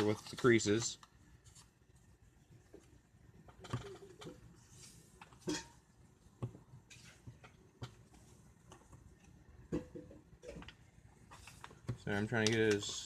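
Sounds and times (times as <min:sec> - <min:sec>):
paper rustling and crinkling: 0:00.0 - 0:01.8, 0:10.6 - 0:13.0.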